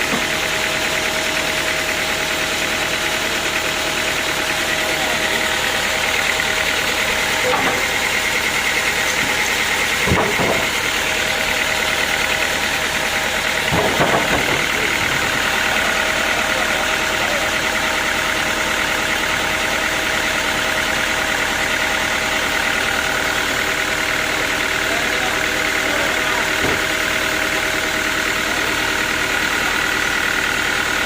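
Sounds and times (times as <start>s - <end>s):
sawmill machinery droning: 0.0s - 31.0s
machinery clunks: 10.0s - 10.8s, 13.6s - 15.2s.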